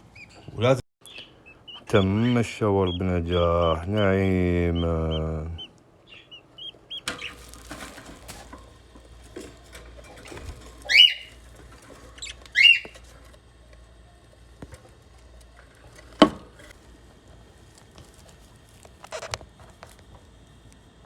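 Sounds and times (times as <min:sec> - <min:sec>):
bird chicks squawking: 0:00.0 - 0:13.2.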